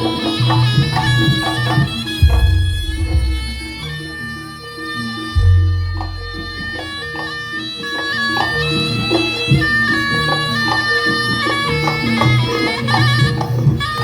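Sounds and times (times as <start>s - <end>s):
drums: 0.0s - 4.3s, 5.4s - 7.2s
reedy shawm melody: 0.0s - 14.0s
gong-chime notes: 2.2s - 7.4s.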